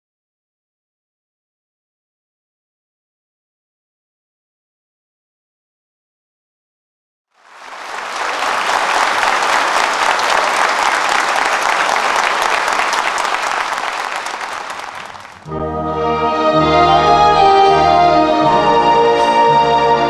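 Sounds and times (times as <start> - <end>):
audience applauding: 7.4 - 15.6
band playing held chords: 8.0 - 20.0.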